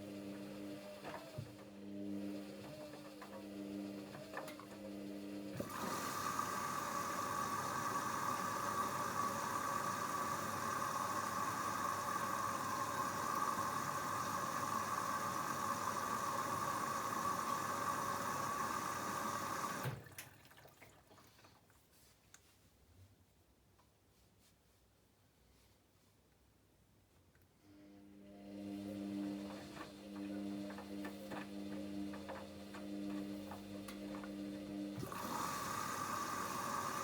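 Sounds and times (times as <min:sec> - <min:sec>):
washing machine humming: 0:00.0 - 0:21.7, 0:28.0 - 0:37.0
water rushing through inlet valve: 0:05.6 - 0:21.2, 0:28.5 - 0:37.0.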